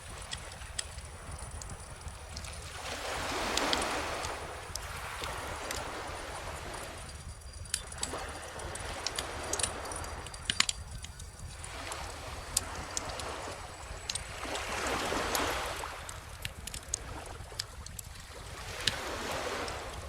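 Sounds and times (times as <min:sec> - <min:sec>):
bonfire crackling and popping: 0:08.7 - 0:14.2.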